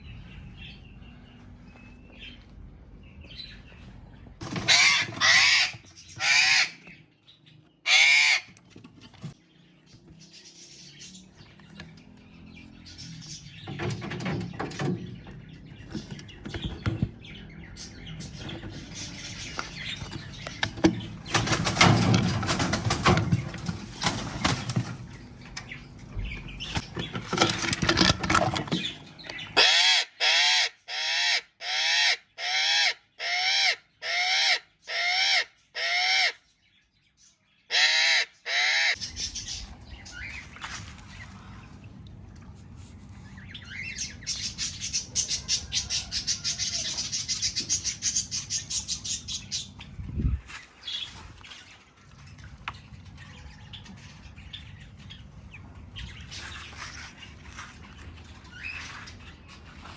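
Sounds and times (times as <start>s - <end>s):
birds calling: 0.0s - 59.9s
bird giving harsh calls: 4.4s - 6.8s, 7.8s - 8.6s, 29.6s - 36.4s, 37.7s - 39.6s.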